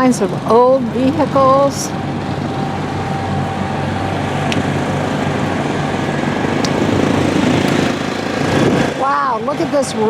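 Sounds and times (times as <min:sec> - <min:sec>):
engine droning: 0:00.0 - 0:10.0.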